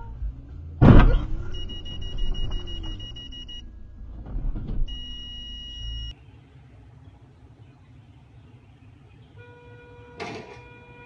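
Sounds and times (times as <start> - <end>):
road rumble: 0.0 - 11.0
vehicle crash: 0.8 - 3.4.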